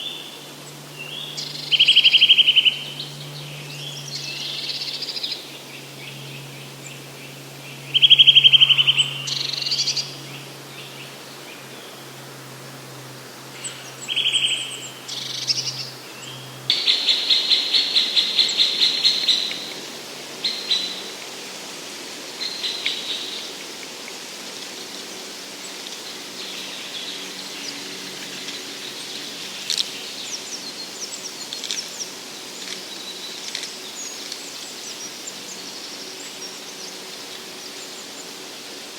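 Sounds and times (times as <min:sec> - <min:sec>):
songbirds singing trilled phrases: 0:00.0 - 0:11.1, 0:13.6 - 0:21.1.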